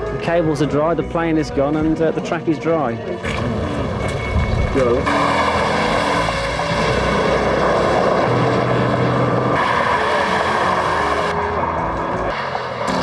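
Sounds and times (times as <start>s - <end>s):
sports car engine at speed: 3.2s - 13.0s.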